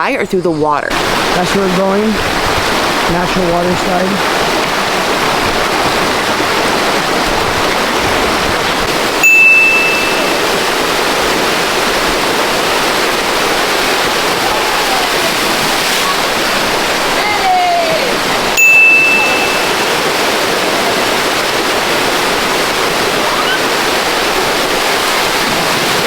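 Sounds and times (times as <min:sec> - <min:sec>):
flowing water: 0:00.0 - 0:26.0
high steady tone: 0:09.2 - 0:11.0, 0:18.6 - 0:20.8.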